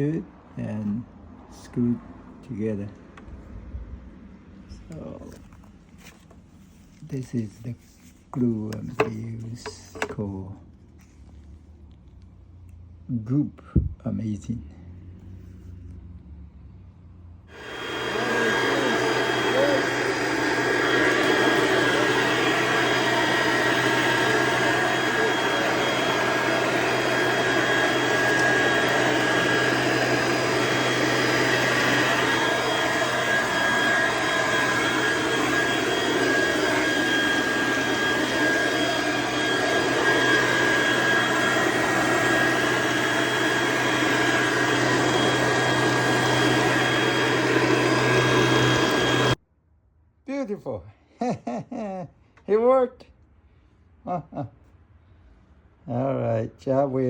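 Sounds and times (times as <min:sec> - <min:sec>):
electric leaf blower running: 0:09.9 - 0:10.2, 0:17.5 - 0:49.4.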